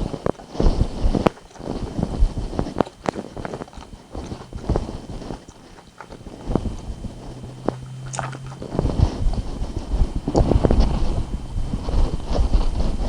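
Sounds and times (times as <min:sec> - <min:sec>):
chewing and biting chicken: 0:00.0 - 0:13.0
wet mouth clicks and smacks: 0:01.3 - 0:08.9.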